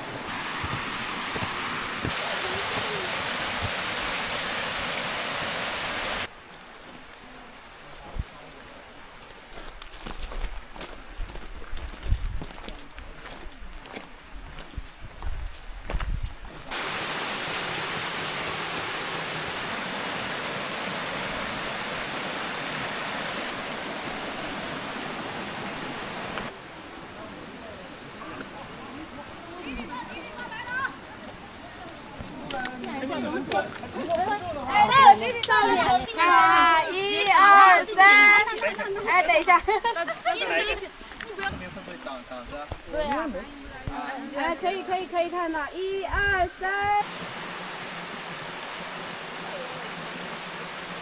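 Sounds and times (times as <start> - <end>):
rushing mountain stream: 0.0 - 51.0
footsteps on trail: 0.3 - 2.9, 8.5 - 16.8, 31.2 - 34.8.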